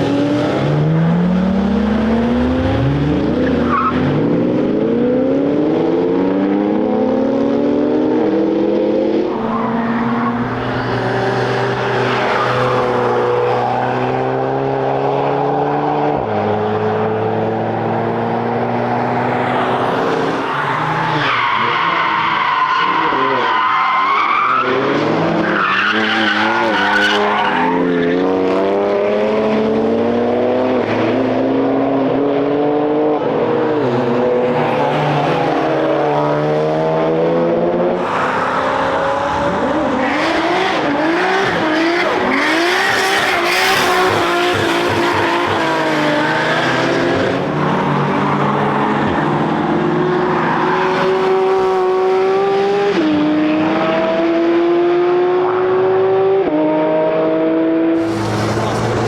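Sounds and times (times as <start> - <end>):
race car engines revving: 0.0 - 59.0
tyres squealing: 9.3 - 12.9.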